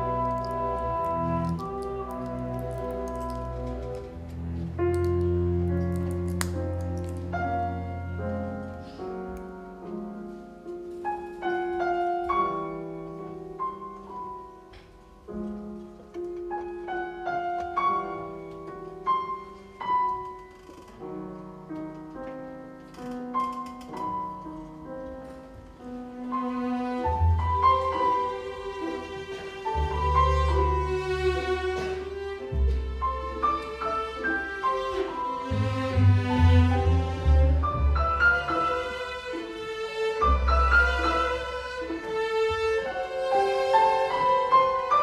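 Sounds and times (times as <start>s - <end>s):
piano playing solo: 0.0s - 39.6s.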